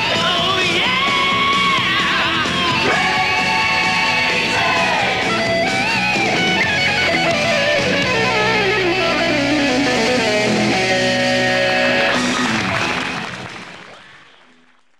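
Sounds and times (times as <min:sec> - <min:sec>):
rock band playing: 0:00.0 - 0:13.9
electric guitar melody: 0:02.3 - 0:13.8.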